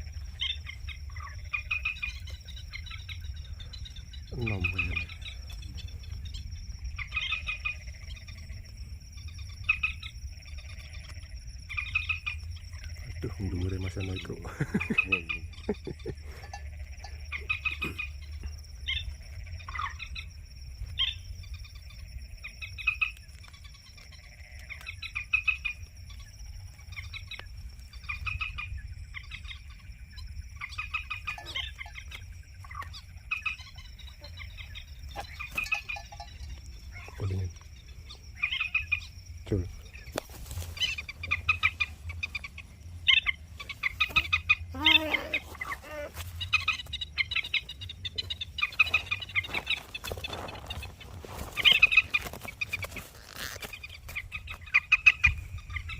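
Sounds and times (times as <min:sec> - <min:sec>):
moorhen clucking calls: 0:13.2 - 0:20.2, 0:39.9 - 0:55.9.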